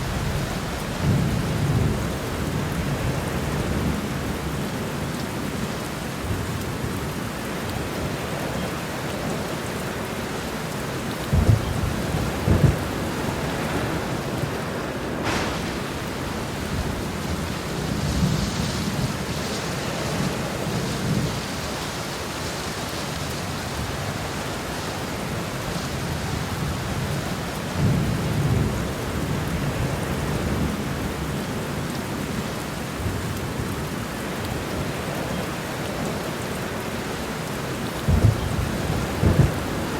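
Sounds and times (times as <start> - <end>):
thunder rumbling: 0.0 - 7.2, 11.2 - 31.3, 38.0 - 39.9
heavy rain: 0.0 - 39.9
thunder cracks: 11.3 - 21.6, 38.1 - 39.9.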